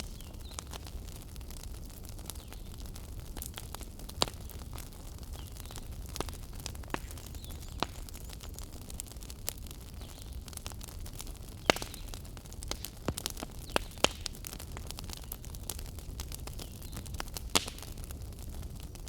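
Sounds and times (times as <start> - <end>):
fire crackles and pops: 0.0 - 19.0
fire rumbling in fireplace: 0.0 - 19.0.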